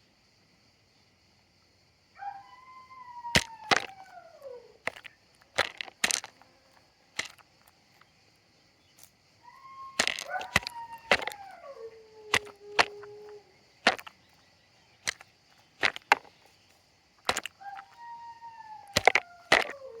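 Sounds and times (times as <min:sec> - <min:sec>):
chickens pecking at feed: 0:03.4 - 0:04.0, 0:04.9 - 0:06.4, 0:09.9 - 0:11.5, 0:12.3 - 0:14.2, 0:15.1 - 0:16.4, 0:17.3 - 0:18.0, 0:19.0 - 0:20.0
hen calling: 0:09.5 - 0:13.5.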